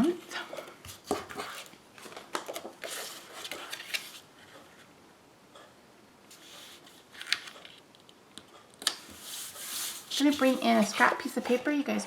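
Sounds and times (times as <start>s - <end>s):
paper shuffling: 0.5s - 4.2s, 6.3s - 7.8s, 8.8s - 11.7s
paper rustling: 0.6s - 4.2s, 6.3s - 7.8s, 8.8s - 11.7s.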